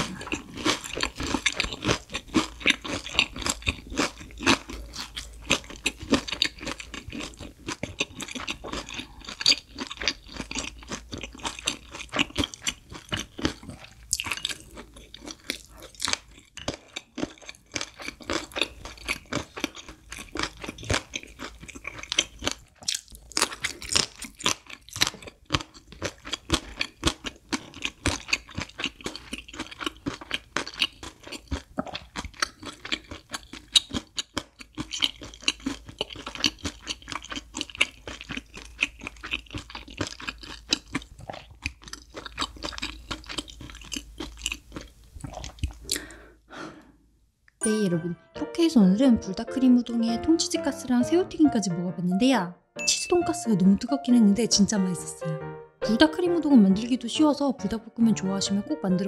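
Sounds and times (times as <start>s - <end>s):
crunching and chewing: 0.0s - 46.3s.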